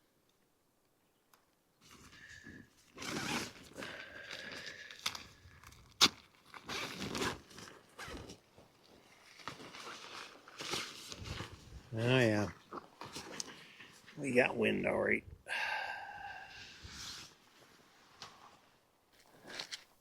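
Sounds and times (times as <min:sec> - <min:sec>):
nylon tent fabric rustling: 0:01.8 - 0:14.4.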